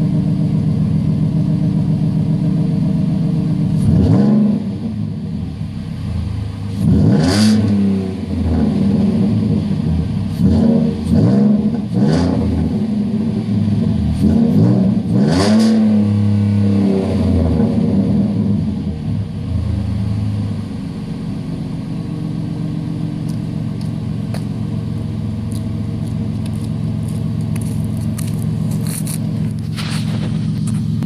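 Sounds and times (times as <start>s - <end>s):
truck engine idling and revving: 0.0s - 31.0s.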